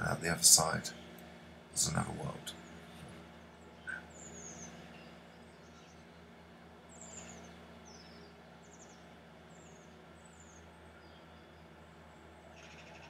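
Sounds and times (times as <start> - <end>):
steady low hum: 0.0 - 13.0
small bird chirps: 3.6 - 6.2, 6.9 - 13.0.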